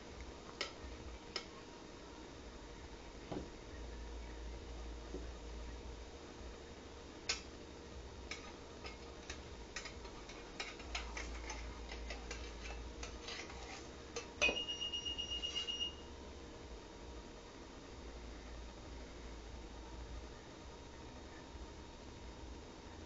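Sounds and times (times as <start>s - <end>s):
high steady tone: 14.4s - 16.2s.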